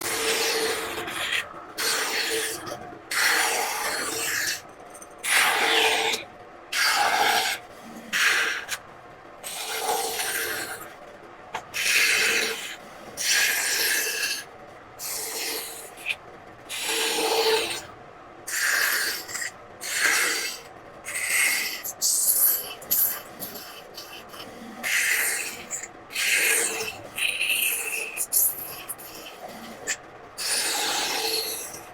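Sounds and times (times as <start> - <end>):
carving tool scraping wood: 0.0 - 4.6, 9.5 - 10.8, 11.9 - 14.4, 16.8 - 17.9, 18.6 - 31.9.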